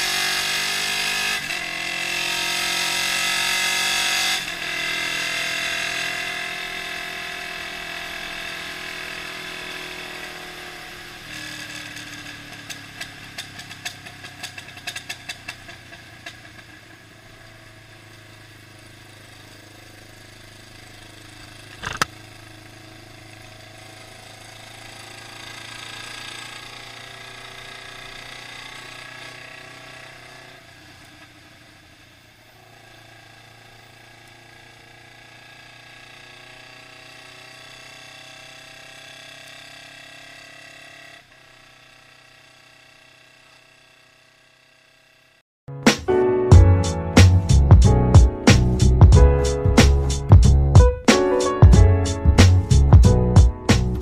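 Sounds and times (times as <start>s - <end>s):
motorcycle engine revving: 0.0s - 54.0s
exhaust pops: 21.4s - 22.2s
loud exhaust crack: 45.8s - 54.0s.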